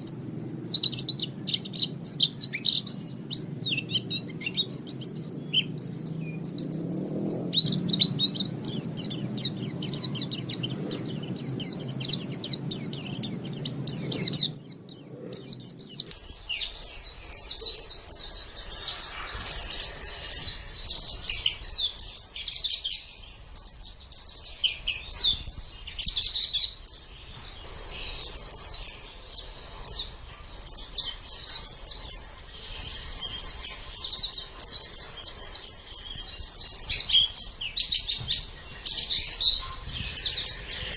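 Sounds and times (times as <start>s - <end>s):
birds twittering song: 0.0s - 40.9s.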